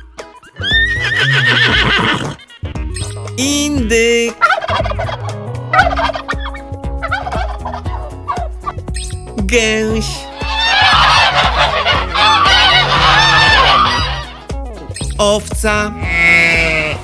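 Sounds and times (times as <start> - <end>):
horse whinnying: 0.4 - 2.5, 10.3 - 14.5
turkey gobbling: 4.4 - 8.8, 10.3 - 14.5.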